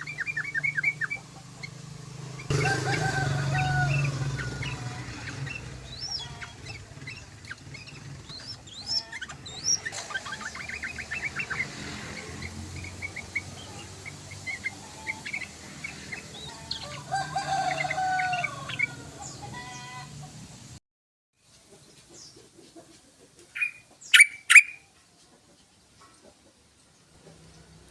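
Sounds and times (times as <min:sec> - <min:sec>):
bird singing chirps and whistles: 0:00.0 - 0:01.2, 0:04.3 - 0:11.6, 0:23.6 - 0:24.8.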